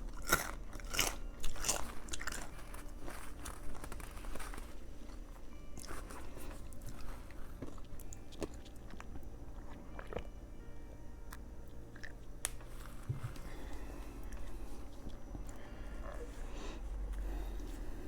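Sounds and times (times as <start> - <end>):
chewing a sandwich: 0.0 - 18.0.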